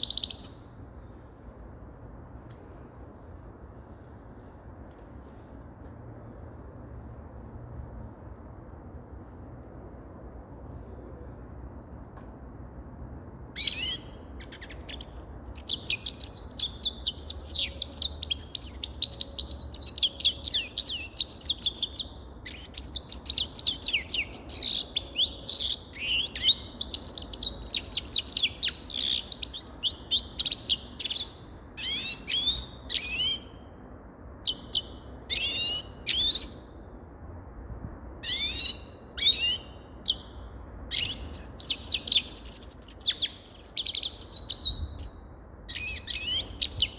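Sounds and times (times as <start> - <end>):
goldfinch twittering song: 13.6 - 33.5.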